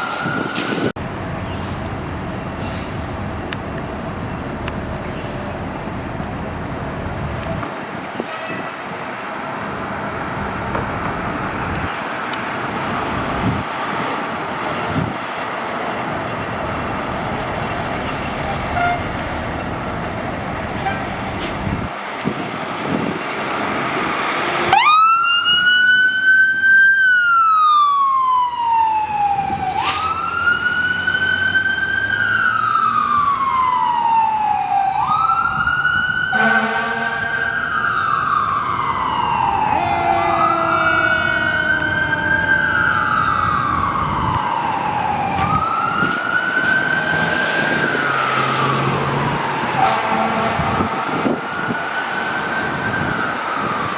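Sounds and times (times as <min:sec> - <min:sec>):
engine and road noise: 0:00.0 - 0:53.9
fire truck siren wailing: 0:00.0 - 0:53.9
horn blast: 0:18.1 - 0:19.2, 0:36.3 - 0:37.5, 0:49.8 - 0:51.0.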